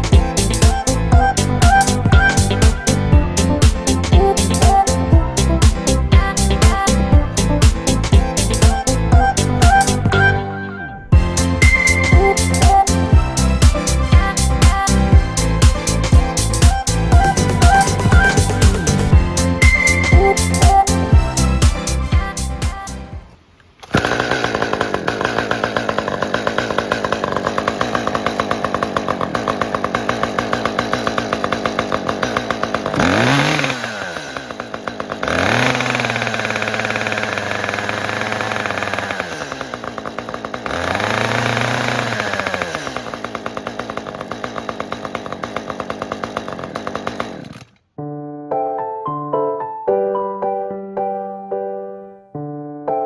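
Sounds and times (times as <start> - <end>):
chainsaw idling and revving: 0.0 - 10.4, 11.2 - 47.8.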